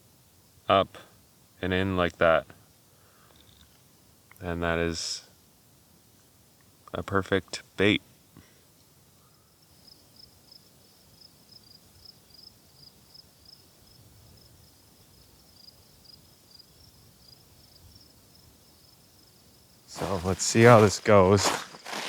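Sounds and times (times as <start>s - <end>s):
insect chirping: 2.6s - 4.1s, 8.7s - 22.0s.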